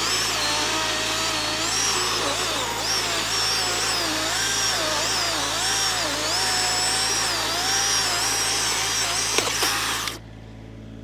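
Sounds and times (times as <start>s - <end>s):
chainsaw cutting wood: 0.0s - 10.2s.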